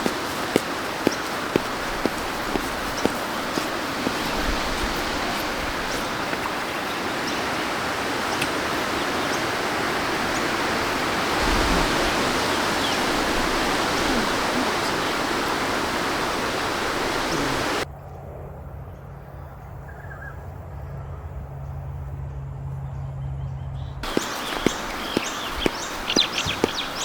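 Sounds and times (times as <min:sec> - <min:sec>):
breeze rushing through trees: 0:00.0 - 0:17.8, 0:24.0 - 0:27.0
faint high bird chirps: 0:24.0 - 0:27.0.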